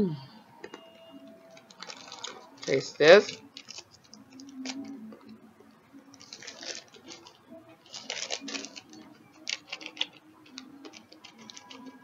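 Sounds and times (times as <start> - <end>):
plastic snack pouch crinkling: 1.5 - 5.0, 6.1 - 12.0.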